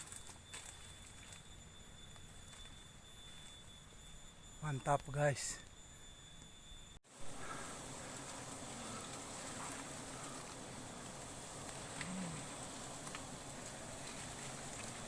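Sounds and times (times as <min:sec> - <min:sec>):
outdoor background hiss: 0:00.0 - 0:15.0
faint insect buzzing: 0:05.6 - 0:15.0.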